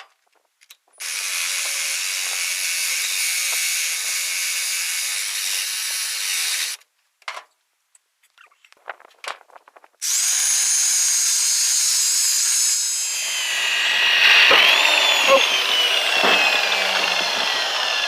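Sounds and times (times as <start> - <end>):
grinder whining: 1.0 - 6.8, 10.0 - 18.0.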